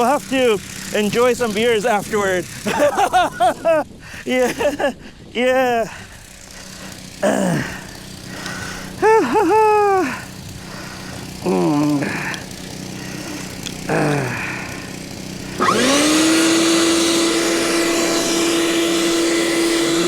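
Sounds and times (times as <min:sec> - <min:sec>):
snowblower engine revving: 0:00.0 - 0:20.0.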